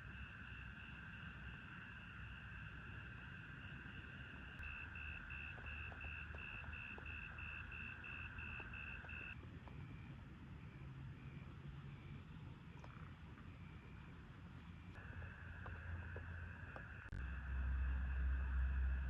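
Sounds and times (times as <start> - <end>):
low rumble: 14.9 - 19.0.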